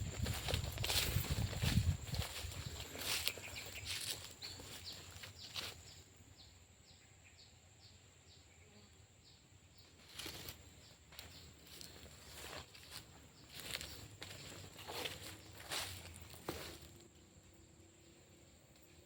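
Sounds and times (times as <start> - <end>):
footsteps rustling through undergrowth: 0.0 - 6.0, 10.0 - 17.1
insect drone: 0.0 - 19.0.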